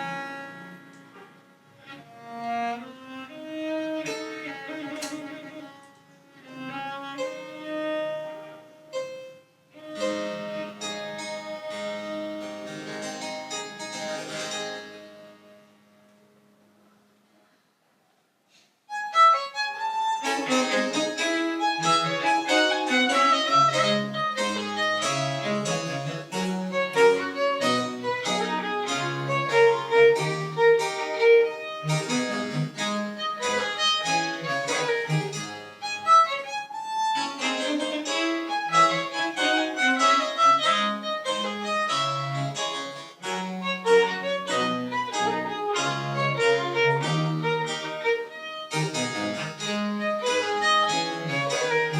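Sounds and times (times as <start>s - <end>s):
violin melody: 0.0s - 15.7s, 18.9s - 51.9s
harpsichord accompaniment: 8.8s - 16.0s, 18.9s - 51.9s.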